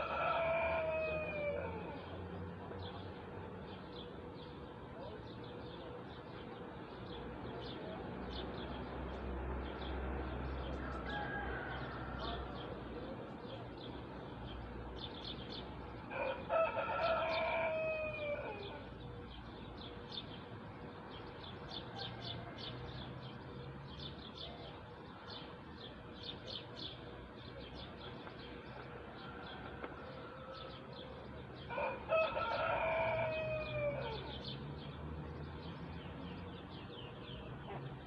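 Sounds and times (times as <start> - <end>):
rooster crowing: 0.0 - 2.1, 10.8 - 12.7, 16.1 - 18.9, 21.9 - 22.8, 31.7 - 34.4
small birds chirping: 0.0 - 38.0.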